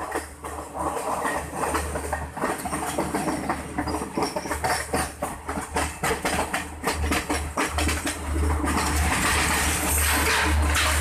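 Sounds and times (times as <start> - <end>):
train wheels clattering on rails: 0.0 - 11.0.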